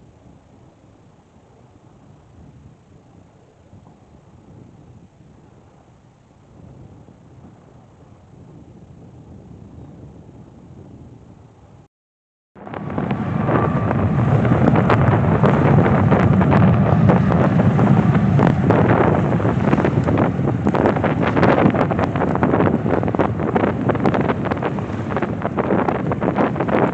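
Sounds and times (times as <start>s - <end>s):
wind buffeting microphone: 0.0s - 11.8s, 12.6s - 26.9s
jet engines roaring: 12.6s - 26.9s.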